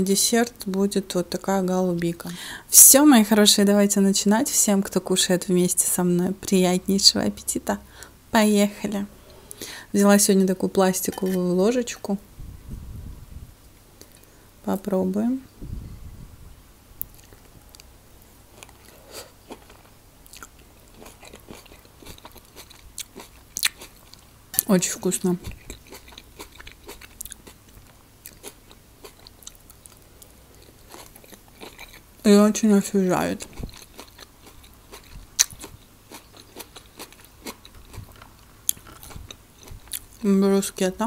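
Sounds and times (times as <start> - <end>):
chewing with wet crunches: 18.5 - 24.3, 25.4 - 32.2, 33.4 - 40.3.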